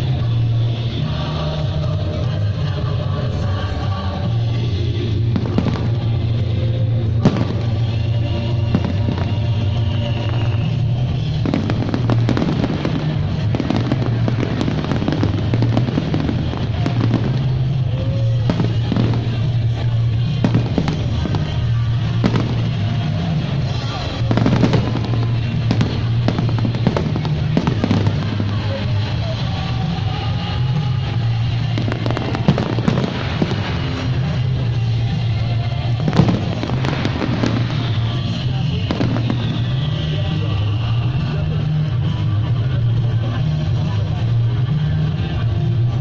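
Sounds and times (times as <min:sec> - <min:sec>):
fireworks bursting and crackling: 0:00.0 - 0:46.0
music playing: 0:00.0 - 0:46.0.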